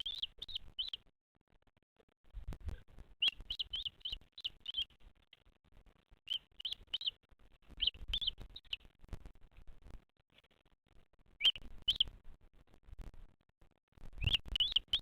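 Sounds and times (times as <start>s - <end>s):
bird chirping: 0.0s - 1.1s, 2.7s - 5.3s, 6.2s - 9.0s, 11.4s - 12.2s, 14.2s - 15.0s.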